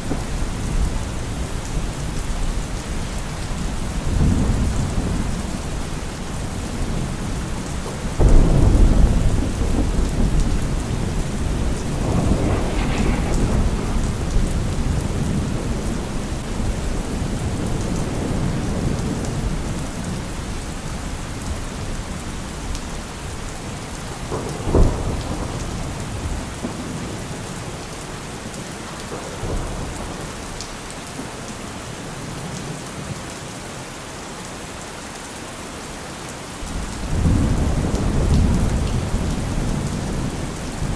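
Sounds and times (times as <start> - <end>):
thunder rumbling: 0.0 - 20.5
steady rain: 0.0 - 40.9
sharp thunder clap: 8.2 - 19.2.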